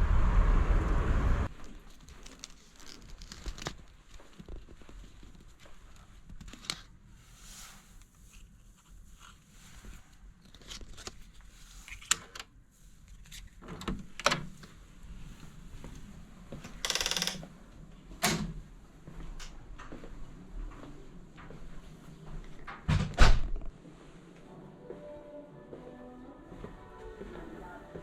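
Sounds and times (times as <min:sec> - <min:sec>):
rustling of things handled: 0:01.5 - 0:16.6.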